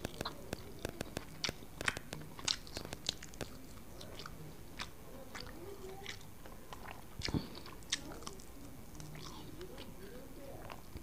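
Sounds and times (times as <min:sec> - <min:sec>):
wet smacking clicks: 0:00.0 - 0:08.4
person chewing: 0:00.0 - 0:10.0.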